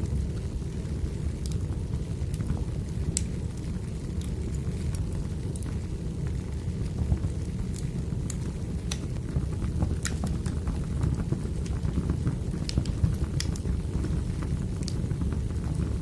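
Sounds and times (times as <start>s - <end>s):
fire rumbling: 0.0s - 16.0s
firewood crackling: 0.0s - 16.0s
sharp pops and snaps: 7.7s - 9.1s, 9.7s - 10.6s, 11.3s - 15.1s.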